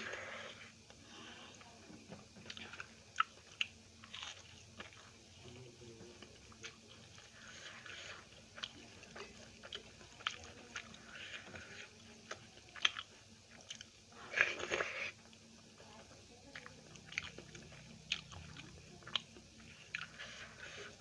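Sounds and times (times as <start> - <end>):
chewing and mouth smacks: 2.1 - 5.2, 6.2 - 15.4, 16.5 - 20.8.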